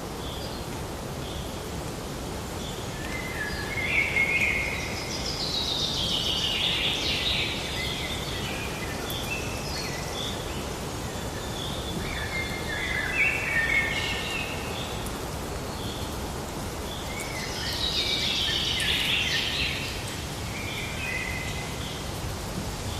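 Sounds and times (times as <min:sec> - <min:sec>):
background hiss: 0:00.0 - 0:22.9
birds calling and singing: 0:16.8 - 0:22.0.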